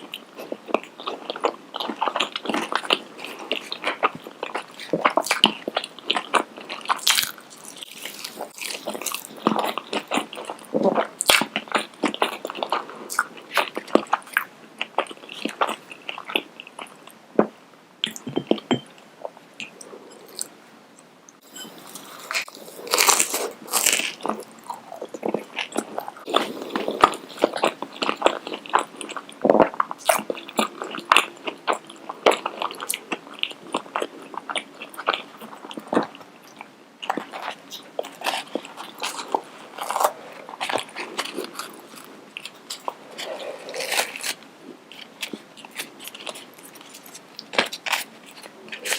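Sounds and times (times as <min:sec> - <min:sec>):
crunchy bites and chewing: 0:01.3 - 0:16.8, 0:21.6 - 0:31.8, 0:37.0 - 0:48.9.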